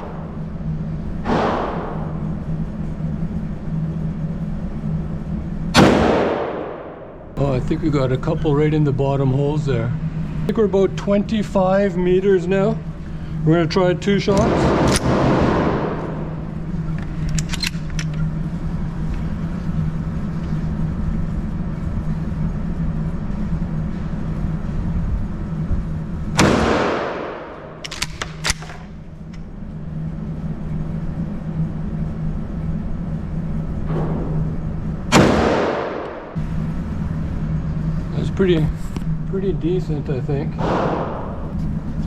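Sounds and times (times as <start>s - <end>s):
low hum: 0.0s - 42.0s
shotgun blasts: 1.3s - 2.2s, 5.8s - 7.1s, 14.4s - 16.3s, 26.4s - 28.5s, 35.1s - 36.3s, 40.6s - 41.4s
metallic clicks of gun action: 17.0s - 18.2s, 27.8s - 29.4s.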